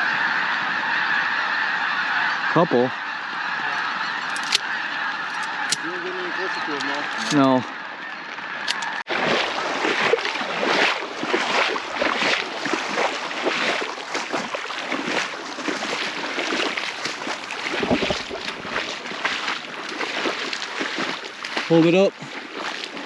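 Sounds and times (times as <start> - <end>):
wading through shallow water: 3.0 - 23.0
wind noise on microphone: 17.7 - 18.8.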